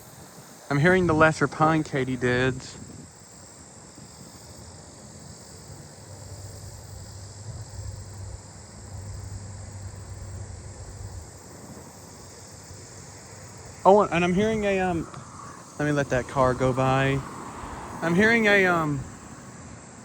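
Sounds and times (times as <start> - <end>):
insect chorus buzzing: 0.0 - 20.0
low vehicle rumble: 6.0 - 20.0.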